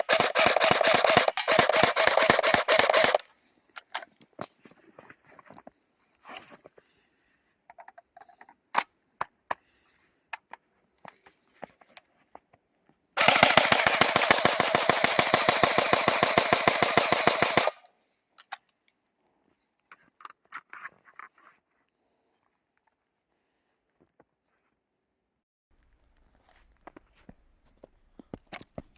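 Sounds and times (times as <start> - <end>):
airsoft gun full-auto burst: 0.0 - 3.2, 13.2 - 17.8.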